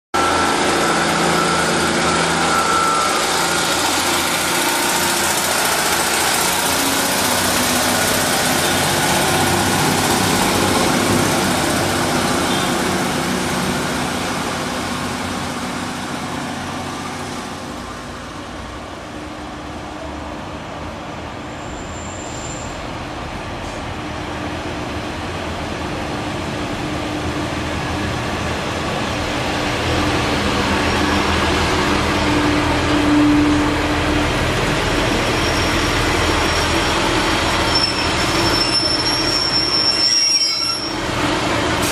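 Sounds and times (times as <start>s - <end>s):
diesel railbus engine drone: 0.2s - 41.9s
diesel train rumble: 0.2s - 41.9s
short high squeak: 21.6s - 22.8s, 35.2s - 41.0s.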